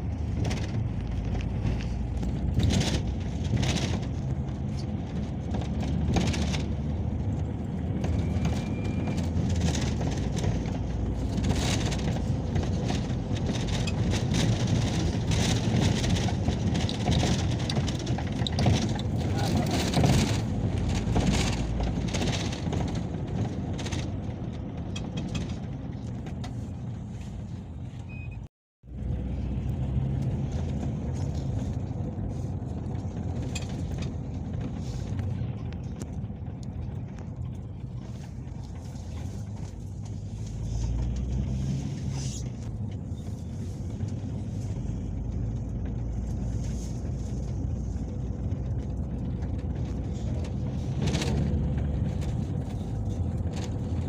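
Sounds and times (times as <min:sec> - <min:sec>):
engine and road rumble: 0:00.0 - 0:54.0.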